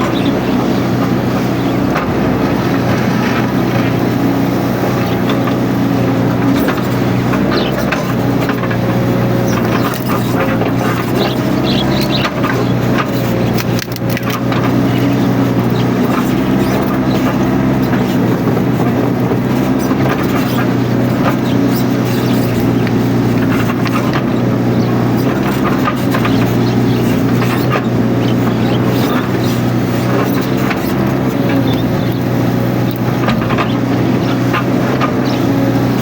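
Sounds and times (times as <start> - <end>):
diesel engine running under load: 0.0 - 36.0
short clicks and cracks: 12.1 - 14.7.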